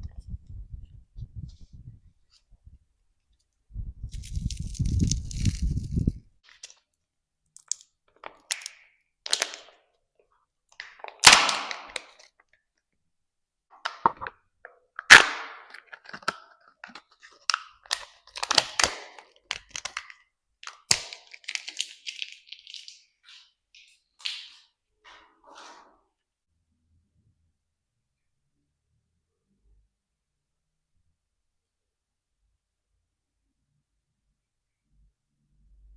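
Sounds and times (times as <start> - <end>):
plastic capsules cracking open: 7.5 - 9.8, 10.8 - 12.3, 15.0 - 23.1
wrappers crinkling: 17.2 - 24.7.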